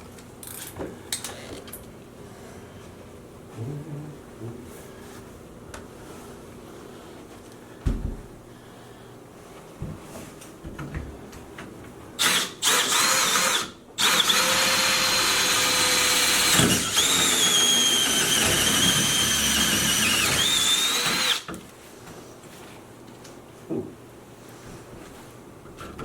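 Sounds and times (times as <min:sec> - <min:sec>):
power drill whining: 0:12.2 - 0:21.5.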